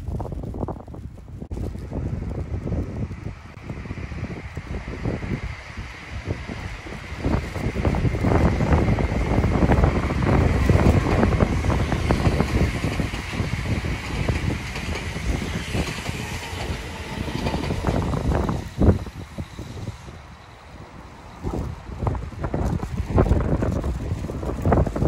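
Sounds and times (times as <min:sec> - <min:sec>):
electric train rumbling past: 0:01.5 - 0:25.0
wheels clattering over rails: 0:08.0 - 0:20.0.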